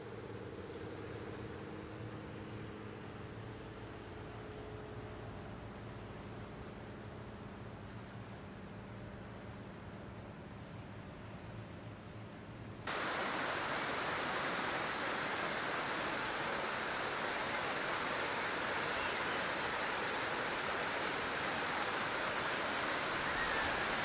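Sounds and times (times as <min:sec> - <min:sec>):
falling water rushing: 0:12.9 - 0:24.0.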